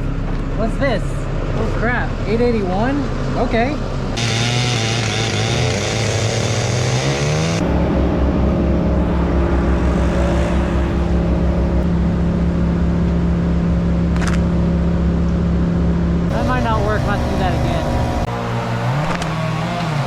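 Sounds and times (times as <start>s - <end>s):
chainsaw running hard: 4.2s - 7.6s, 16.3s - 20.0s.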